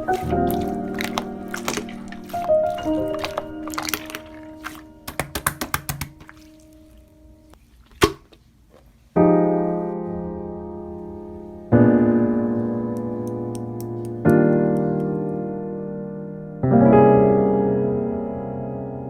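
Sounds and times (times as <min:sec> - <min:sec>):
piano chords: 0:00.0 - 0:07.6, 0:09.2 - 0:19.0
slime squishing clicks and pops: 0:03.2 - 0:06.2.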